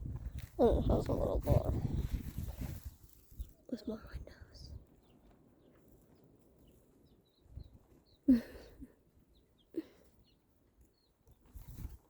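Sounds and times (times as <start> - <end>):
baby chicks peeping: 4.8 - 8.3, 9.0 - 12.0.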